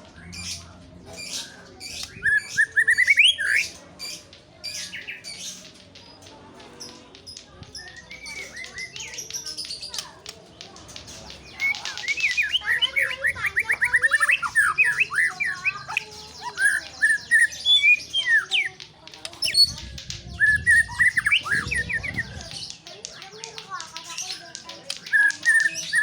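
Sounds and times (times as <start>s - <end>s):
bird singing: 0.0s - 5.7s, 11.1s - 26.0s.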